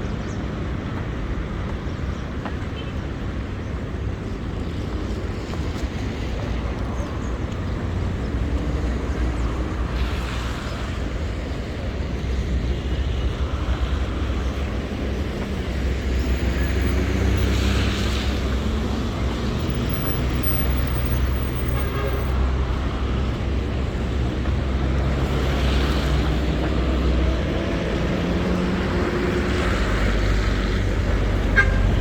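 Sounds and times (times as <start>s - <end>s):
traffic on wet road: 0.0s - 32.0s.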